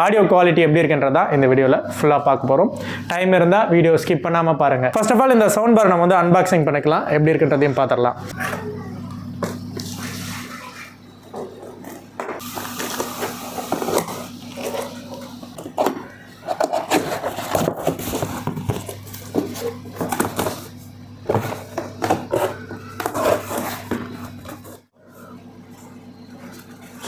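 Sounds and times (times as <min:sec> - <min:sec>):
cardboard packaging rustling and scraping: 0:09.8 - 0:27.0.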